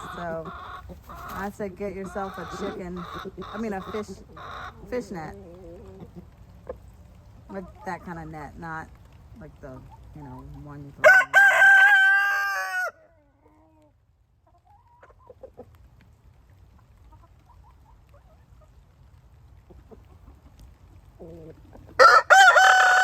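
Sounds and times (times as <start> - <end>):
faint chicken clucks: 0.0 - 8.0, 11.2 - 16.1, 16.7 - 23.0
rooster crowing: 11.0 - 13.0, 22.0 - 23.0.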